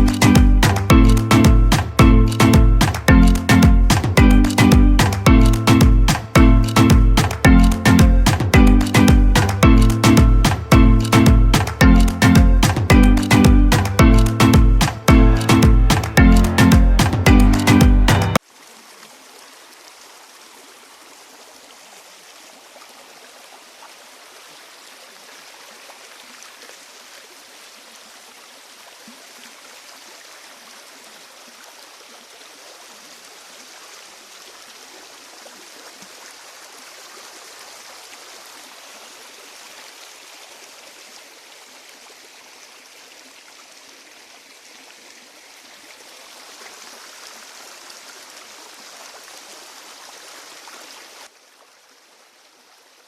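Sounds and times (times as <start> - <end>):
stream running water: 0.0 - 53.0.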